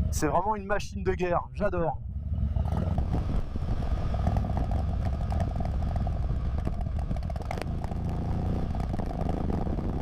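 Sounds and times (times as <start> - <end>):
motorcycle engine running: 2.0 - 10.0.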